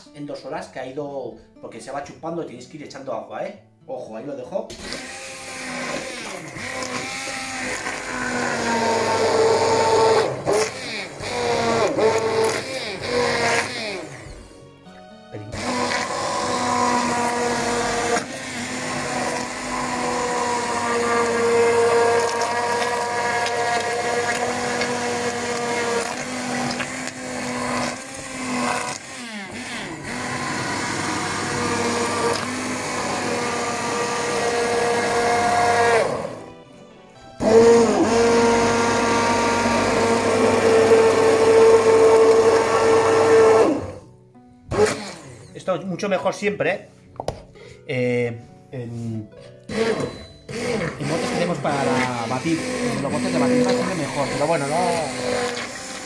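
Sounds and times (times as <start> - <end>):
immersion blender motor whine: 4.7 - 14.6, 15.5 - 36.5, 37.4 - 44.1, 44.7 - 45.6, 49.7 - 56.0.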